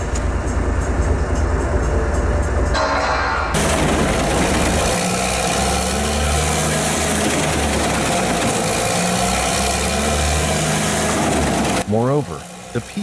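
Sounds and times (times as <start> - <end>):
wood chipper engine drone: 2.8 - 13.0.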